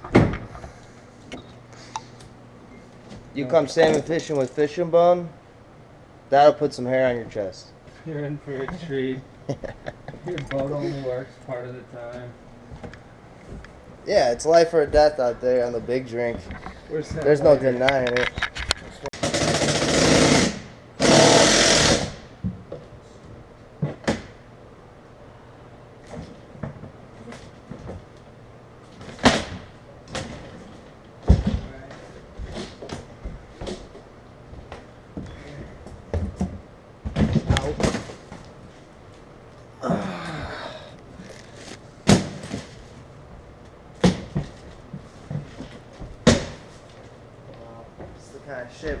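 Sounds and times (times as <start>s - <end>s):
loud harsh rattling: 19.2s - 22.3s.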